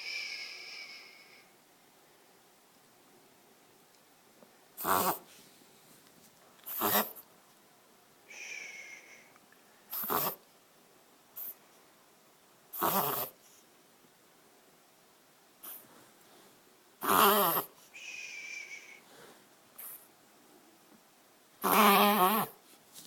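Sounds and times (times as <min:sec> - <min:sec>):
dog whining: 0:04.8 - 0:05.2, 0:06.7 - 0:07.2, 0:17.0 - 0:17.7, 0:21.6 - 0:22.6
dog reverse sneezing snorts: 0:04.8 - 0:05.3, 0:06.7 - 0:07.2.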